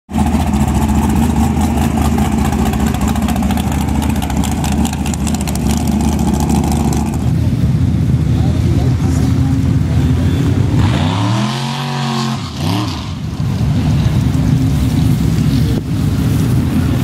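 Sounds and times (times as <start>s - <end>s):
truck engine idling loudly: 0.1s - 10.8s.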